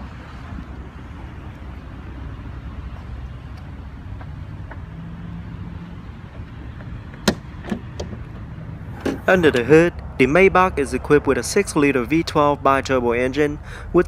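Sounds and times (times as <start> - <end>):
car engine idling: 6.0 - 11.2.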